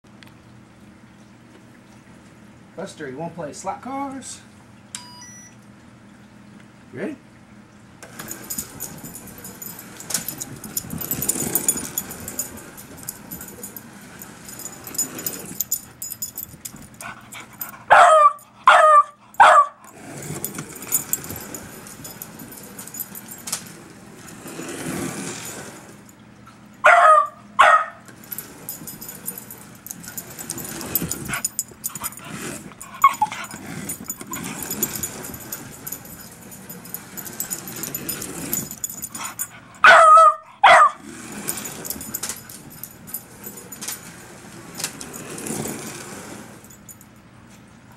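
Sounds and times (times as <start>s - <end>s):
slot car motor whirring: 8.0s - 16.2s, 28.1s - 39.5s
dog barking: 17.8s - 19.8s, 26.8s - 28.1s, 33.0s - 33.6s, 39.8s - 41.0s.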